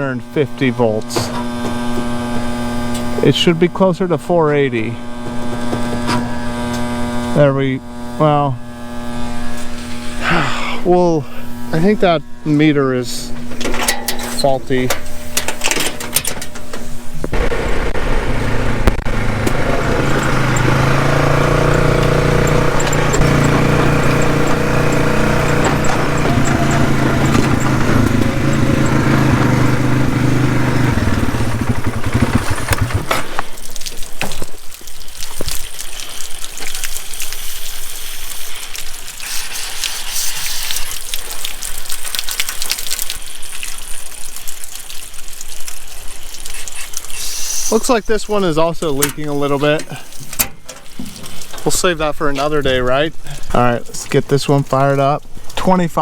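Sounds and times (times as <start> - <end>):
engine running: 0.0 - 33.6, 47.2 - 54.0
rushing hiss: 37.3 - 40.9, 46.6 - 48.4.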